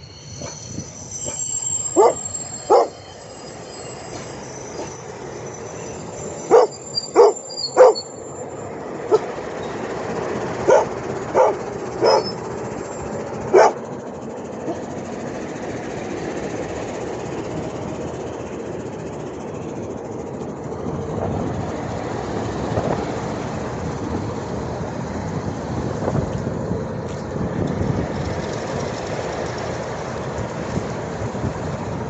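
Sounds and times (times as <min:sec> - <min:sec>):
diesel locomotive running: 0:00.0 - 0:32.0
dog barking: 0:02.0 - 0:03.0, 0:06.5 - 0:08.0, 0:09.1 - 0:09.3, 0:10.6 - 0:12.4, 0:13.5 - 0:13.8.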